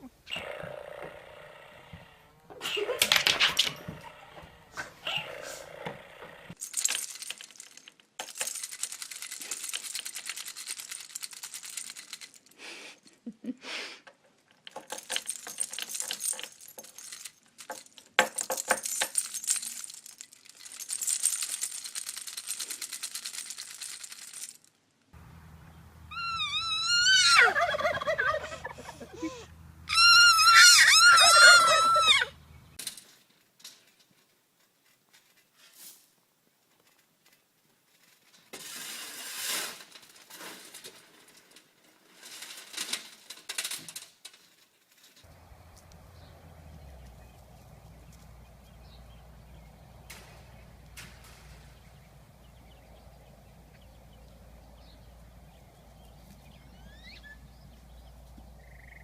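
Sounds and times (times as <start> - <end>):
faint scratchy hiss: 33.0 - 49.3
warbling bird calls: 51.7 - 59.0.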